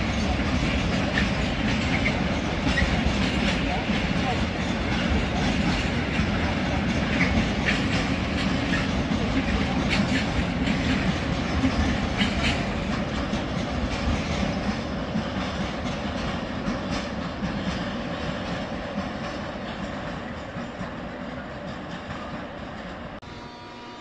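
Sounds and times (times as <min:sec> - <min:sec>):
train wheels rumbling on rail: 0:00.0 - 0:23.3.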